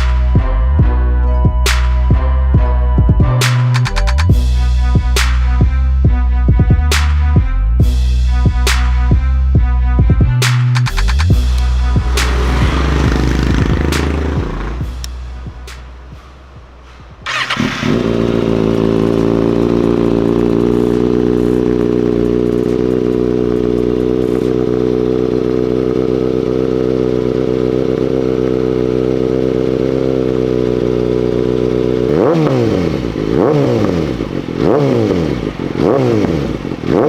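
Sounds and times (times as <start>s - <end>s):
motorcycle engine idling: 11.3s - 15.1s, 17.2s - 37.0s
motorcycle engine cranking: 12.0s - 14.8s, 17.3s - 23.0s.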